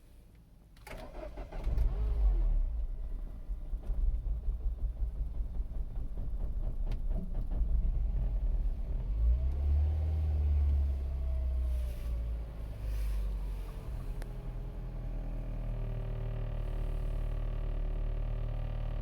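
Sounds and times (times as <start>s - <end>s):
car engine rough idle: 2.6s - 9.2s, 10.7s - 19.0s.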